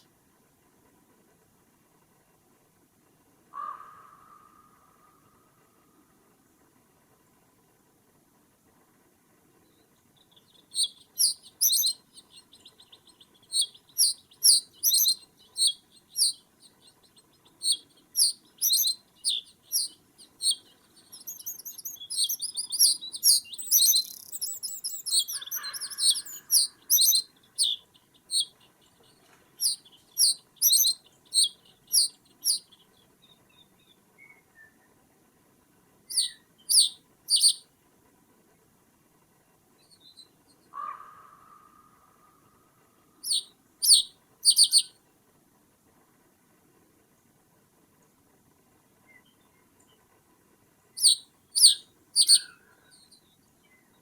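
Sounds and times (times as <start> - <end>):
lower bird call: 3.5 - 6.0, 10.2 - 35.0, 36.1 - 37.6, 39.8 - 44.9, 51.0 - 53.3
small bird chirping: 9.6 - 35.0, 36.1 - 37.6, 39.8 - 45.0, 51.0 - 54.0.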